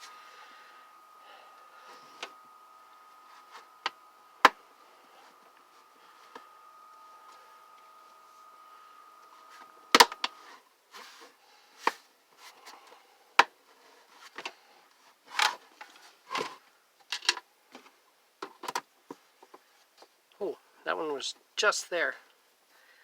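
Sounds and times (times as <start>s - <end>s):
faint steady tone: 0.0s - 18.2s.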